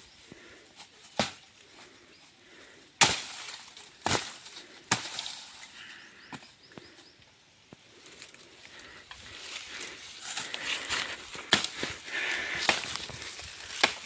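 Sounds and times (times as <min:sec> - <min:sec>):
blade chopping bamboo: 0:01.2 - 0:01.4, 0:03.0 - 0:05.4, 0:11.5 - 0:11.8, 0:12.6 - 0:14.0.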